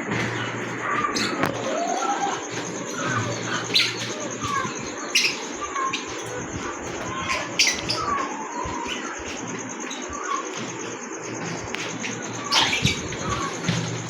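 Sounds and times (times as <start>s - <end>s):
small parrots chirping: 0.2s - 14.0s
parrot squawks: 0.4s - 9.2s, 12.0s - 13.9s.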